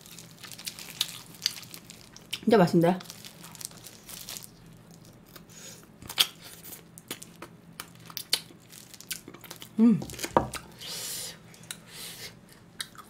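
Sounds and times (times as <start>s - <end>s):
chewing rib meat: 5.2s - 10.8s, 12.4s - 13.0s.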